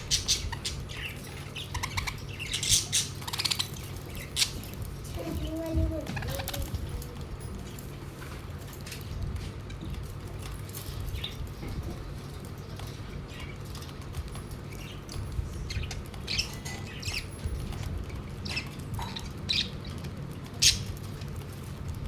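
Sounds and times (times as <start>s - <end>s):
budgerigars chirping and squawking: 0.0s - 6.8s, 14.7s - 20.0s, 20.6s - 21.3s
steady low hum: 0.0s - 22.0s.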